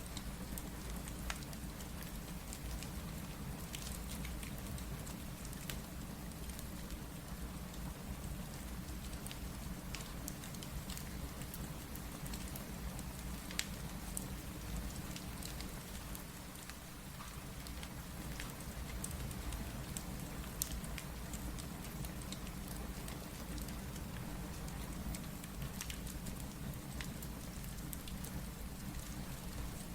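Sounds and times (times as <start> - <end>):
steady rain: 0.0 - 29.9
wood fire crackling and popping: 0.1 - 29.9.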